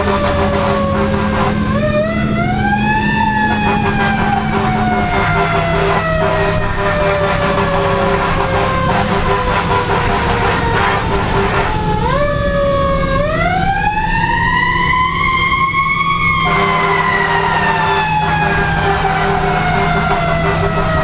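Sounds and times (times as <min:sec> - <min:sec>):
fire engine siren wailing: 0:00.0 - 0:21.0
truck engine drone: 0:00.0 - 0:21.0.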